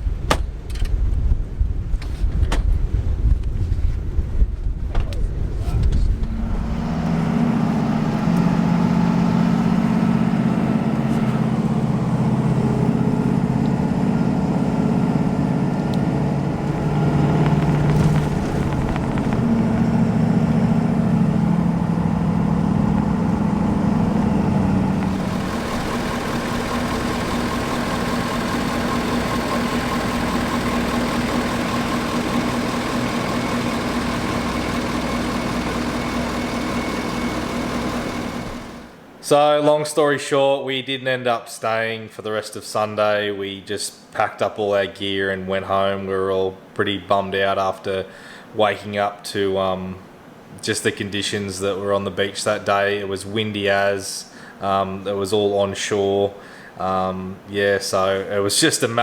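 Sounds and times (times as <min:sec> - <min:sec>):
vehicle engine running: 0:05.8 - 0:39.0.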